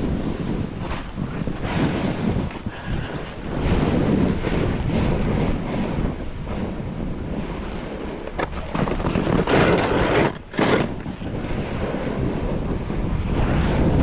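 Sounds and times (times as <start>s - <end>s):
snowboard carving through snow: 0.0s - 14.0s
wind rushing over microphone: 0.0s - 14.0s.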